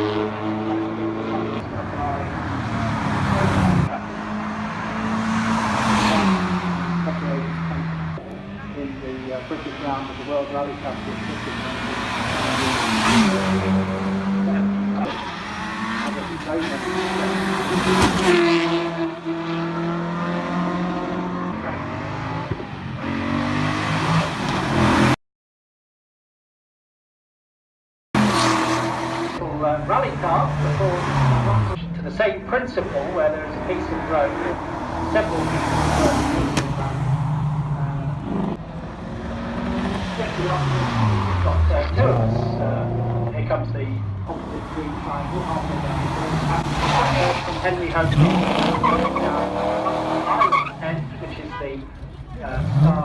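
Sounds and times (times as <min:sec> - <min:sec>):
rally car engine: 0:00.0 - 0:25.2, 0:28.2 - 0:53.0
tyre squeal: 0:48.5 - 0:50.8.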